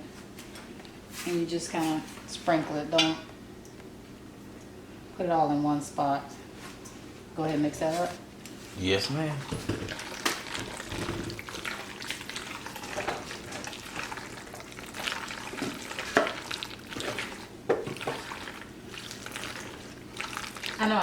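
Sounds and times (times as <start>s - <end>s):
spoon stirring wet mix: 9.4s - 21.0s.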